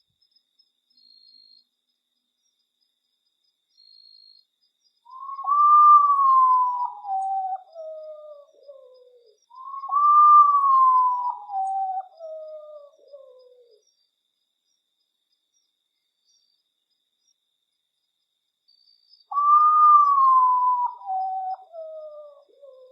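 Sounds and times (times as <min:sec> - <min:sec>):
bird whistling falling notes: 0:05.1 - 0:07.6, 0:09.6 - 0:12.0, 0:19.3 - 0:21.9.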